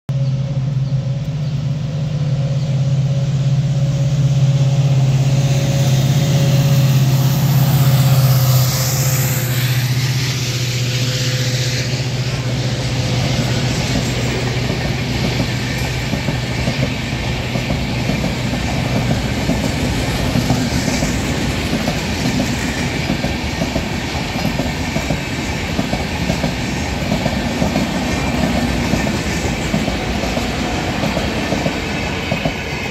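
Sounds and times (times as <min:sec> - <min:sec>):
train passing with low hum: 0:00.1 - 0:32.9
wheels clattering on rails: 0:11.7 - 0:32.9.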